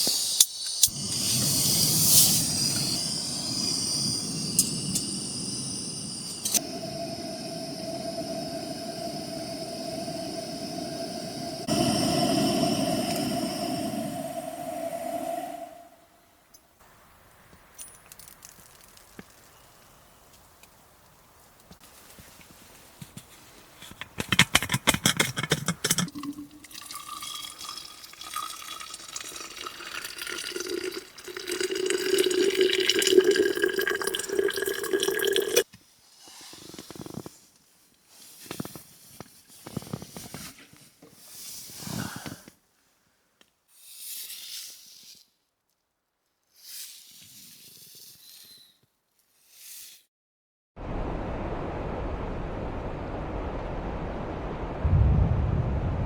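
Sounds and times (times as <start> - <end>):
short hissing: 0.0 - 16.3
water pouring into container: 25.4 - 35.6.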